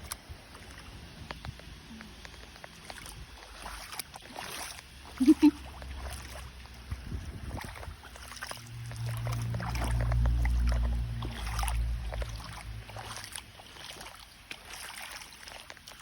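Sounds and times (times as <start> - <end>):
low engine hum: 0.0 - 14.7
rain: 8.6 - 13.1.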